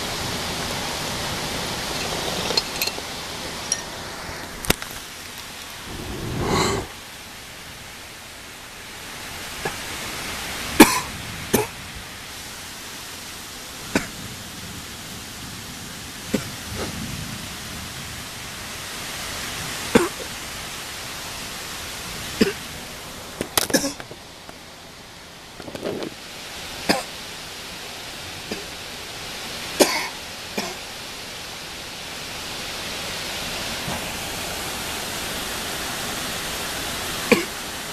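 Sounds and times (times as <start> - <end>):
steady rain hiss: 0.0 - 37.9.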